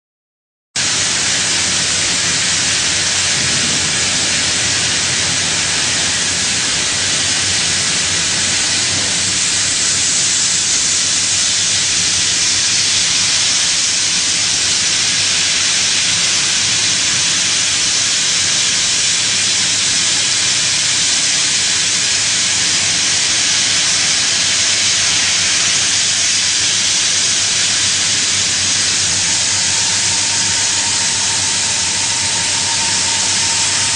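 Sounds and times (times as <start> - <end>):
milling cutter hissing: 0.8 - 33.9.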